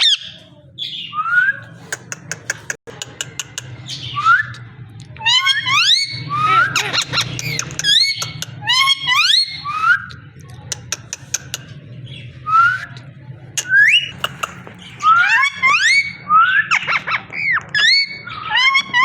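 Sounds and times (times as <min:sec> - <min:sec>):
sharp clicks: 0:01.9 - 0:03.8, 0:07.3 - 0:08.6, 0:10.4 - 0:11.7, 0:13.6 - 0:14.8.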